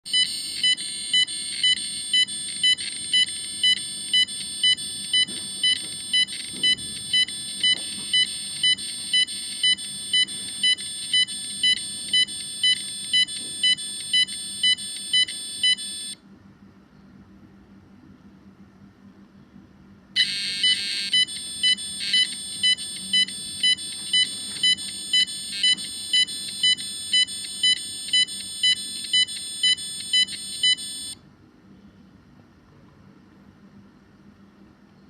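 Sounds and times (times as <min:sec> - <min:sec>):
high-pitched alarm beeps: 0:00.1 - 0:16.2, 0:20.2 - 0:31.2.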